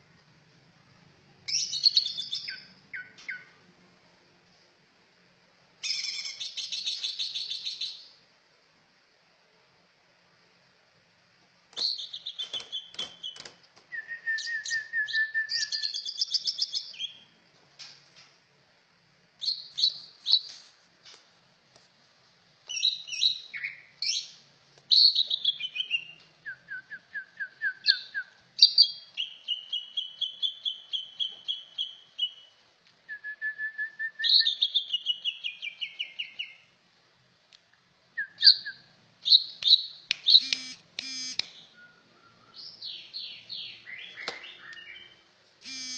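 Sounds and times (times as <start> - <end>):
songbird trilling and whistling: 1.5 - 3.5, 5.8 - 8.1, 11.8 - 17.2, 19.4 - 20.5, 22.7 - 32.5, 33.2 - 36.6, 38.2 - 45.9.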